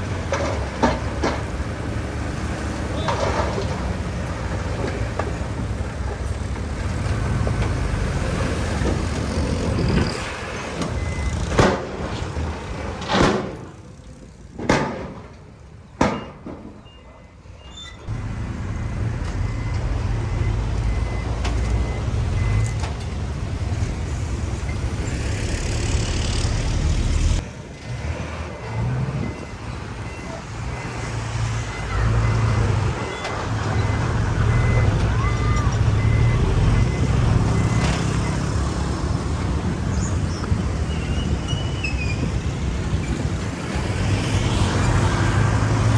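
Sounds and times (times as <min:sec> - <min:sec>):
diesel machinery rumbling: 0:00.0 - 0:45.9
reversing alarm beeping: 0:09.3 - 0:11.5, 0:16.2 - 0:39.0.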